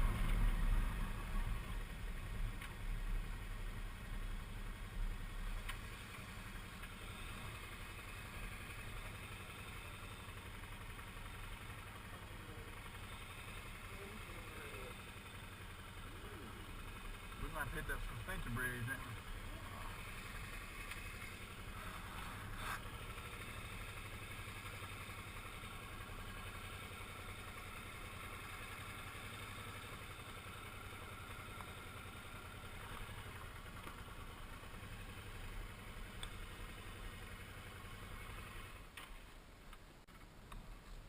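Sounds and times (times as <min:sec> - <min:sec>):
motorcycle engine running: 0:00.0 - 0:39.3.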